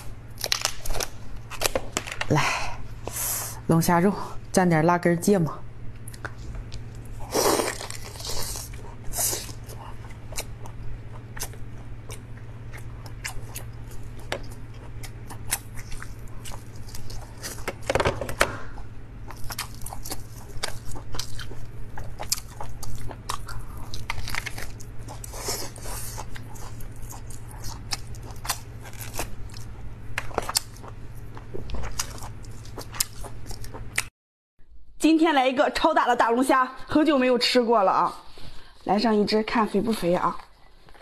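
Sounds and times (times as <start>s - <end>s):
wet chewing and biting: 6.0s - 17.9s, 19.2s - 34.1s.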